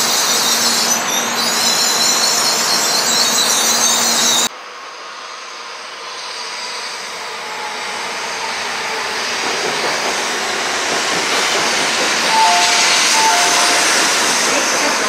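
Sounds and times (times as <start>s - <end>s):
train wheel and air rush: 0.0s - 15.0s
two-note tone: 12.3s - 14.1s.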